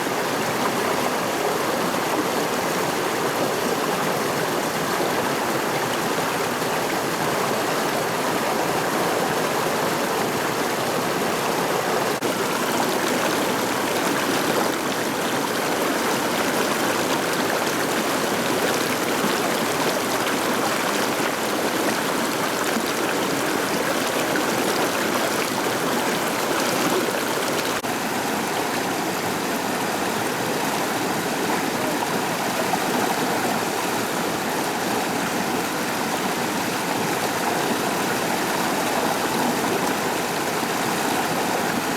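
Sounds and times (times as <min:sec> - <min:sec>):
river rushing: 0:00.0 - 0:41.9.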